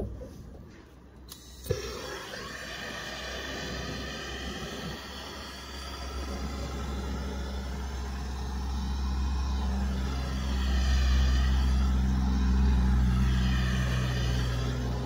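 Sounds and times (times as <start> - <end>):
vehicle engine passing by: 3.2 - 15.0.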